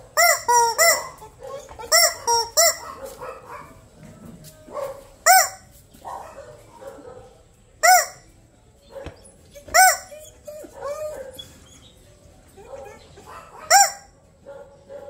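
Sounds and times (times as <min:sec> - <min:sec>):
rubber chicken toy squawking: 0:00.2 - 0:02.8, 0:07.8 - 0:08.2, 0:09.6 - 0:10.2.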